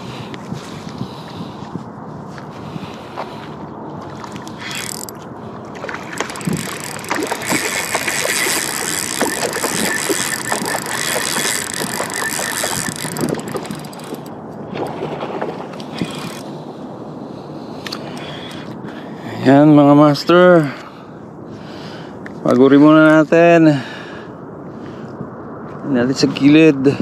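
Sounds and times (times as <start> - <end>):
rushing wind: 0.0 - 27.0
sea noise: 2.6 - 19.3.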